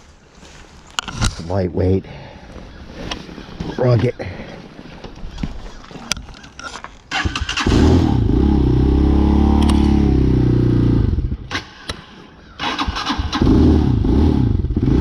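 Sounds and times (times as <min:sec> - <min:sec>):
motorcycle engine starting and running: 0:07.1 - 0:15.0
clicks: 0:09.6 - 0:10.0.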